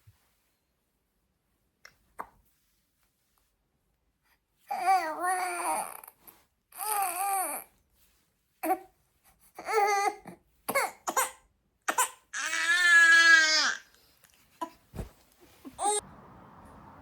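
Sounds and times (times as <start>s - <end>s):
baby crying: 9.6s - 13.8s, 15.8s - 16.0s.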